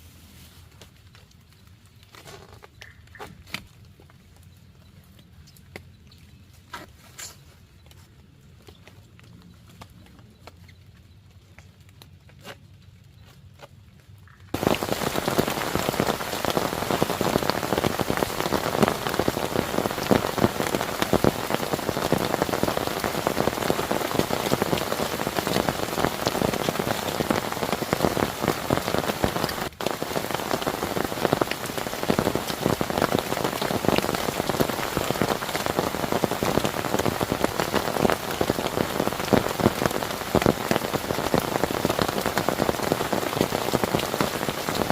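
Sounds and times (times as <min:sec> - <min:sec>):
heavy rain hiss: 0:14.6 - 0:44.9.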